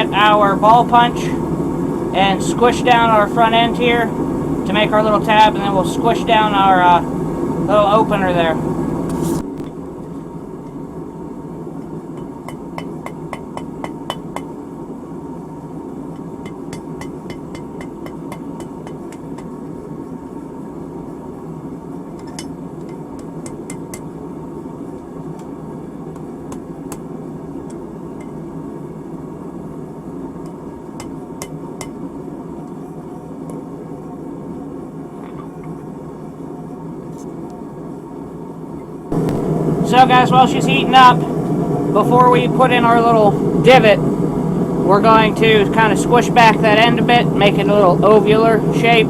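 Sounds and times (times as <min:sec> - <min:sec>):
hammer striking horseshoe on anvil: 0:12.2 - 0:14.5, 0:16.4 - 0:19.2
low rushing noise: 0:39.1 - 0:49.0.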